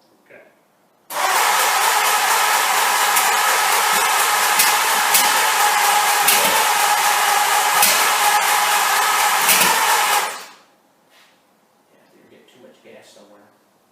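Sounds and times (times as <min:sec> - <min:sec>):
starter motor cranking engine: 0:01.1 - 0:10.6.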